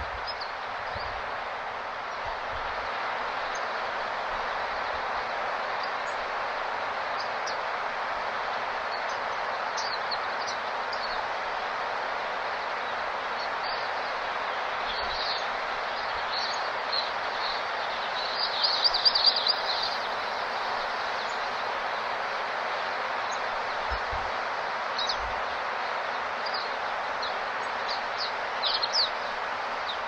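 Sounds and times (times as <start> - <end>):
steady background noise: 0.0 - 30.0
small birds chirping: 12.8 - 22.2, 26.0 - 30.0.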